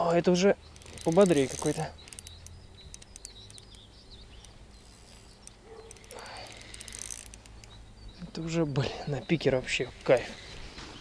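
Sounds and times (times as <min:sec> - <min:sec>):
faint bird chirps: 0:00.2 - 0:11.0
fishing reel ticking: 0:00.6 - 0:08.1.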